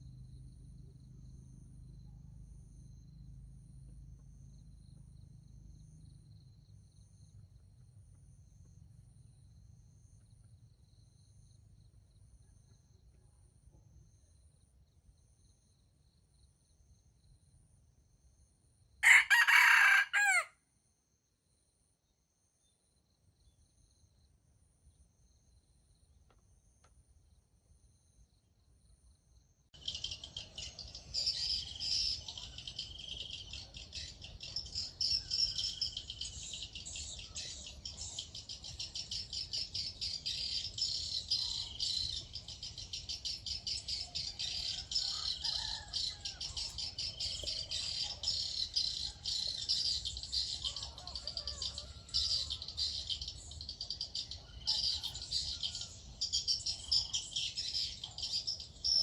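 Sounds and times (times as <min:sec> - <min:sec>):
high-pitched chirping chorus: 0:29.8 - 0:59.0.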